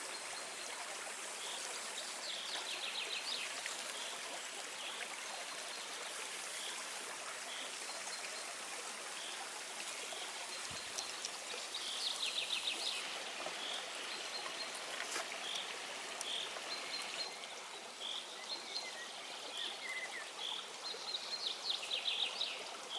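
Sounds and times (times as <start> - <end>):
stream running: 0.0 - 22.9.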